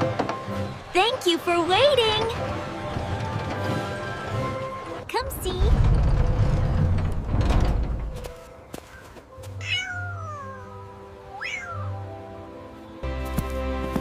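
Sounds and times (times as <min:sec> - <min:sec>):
soft sustained music: 0:07.9 - 0:14.0
cat meowing: 0:09.6 - 0:12.1.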